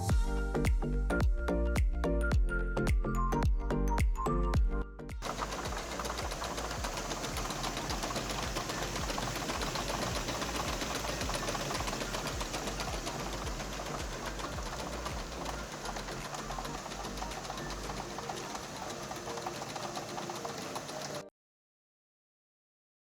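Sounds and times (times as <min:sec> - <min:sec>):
machine hum: 0:05.2 - 0:21.3.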